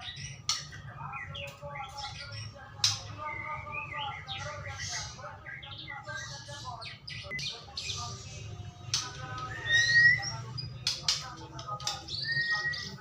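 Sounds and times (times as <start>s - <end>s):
bird singing whistles and chirps: 9.3s - 11.0s, 11.8s - 13.0s.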